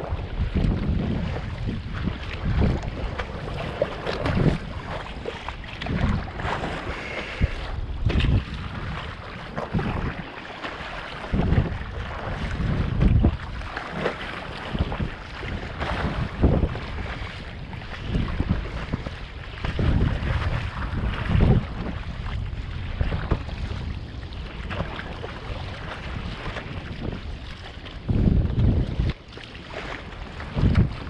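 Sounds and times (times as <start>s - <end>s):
choppy sea water splashing: 0.0s - 31.0s
wind buffeting microphone: 0.0s - 31.0s.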